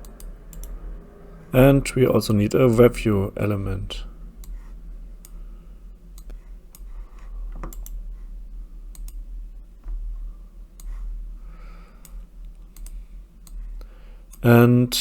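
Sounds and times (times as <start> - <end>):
computer mouse clicks: 0.0 - 0.8, 4.4 - 5.4, 6.1 - 8.0, 8.9 - 9.2, 10.8 - 11.1, 12.0 - 13.6
low electrical hum: 0.0 - 15.0.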